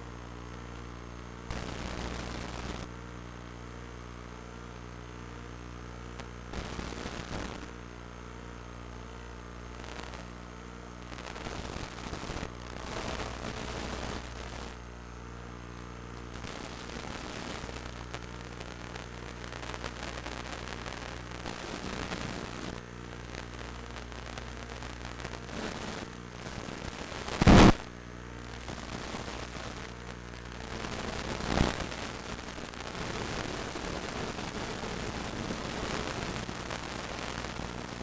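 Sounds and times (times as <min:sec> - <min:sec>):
electrical hum: 0:00.0 - 0:38.0
hissing static bursts: 0:01.4 - 0:02.9, 0:06.1 - 0:07.8, 0:09.7 - 0:14.9, 0:16.0 - 0:38.0.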